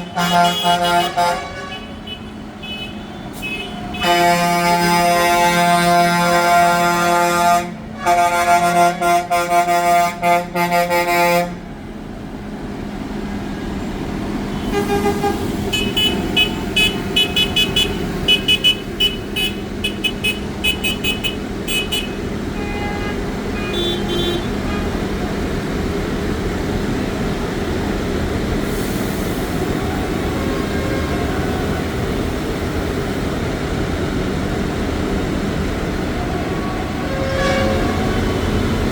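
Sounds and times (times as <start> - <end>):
tractor horn blasts: 0.0 - 11.6, 14.5 - 25.0, 30.3 - 31.6, 36.5 - 38.4
vehicle engines passing: 0.0 - 38.9
high-pitched horn beeping rapidly: 14.6 - 24.8.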